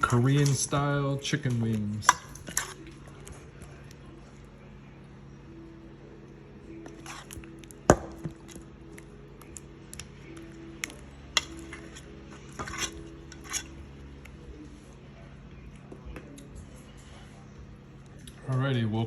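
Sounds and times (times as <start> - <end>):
bowl and utensils clinking: 0.0 - 3.0, 11.3 - 13.8.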